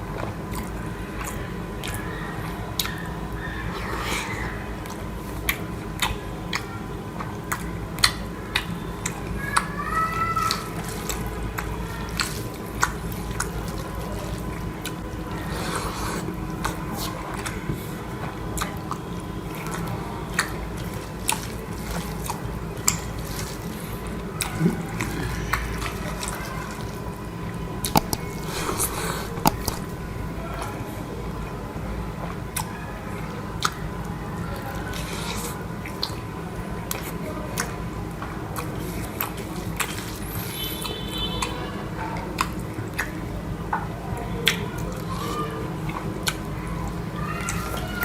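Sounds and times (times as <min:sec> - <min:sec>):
wet squishy chewing: 0:10.5 - 0:19.0, 0:27.8 - 0:30.5, 0:34.6 - 0:37.7, 0:38.5 - 0:40.2
mouth clicks: 0:27.9 - 0:30.3.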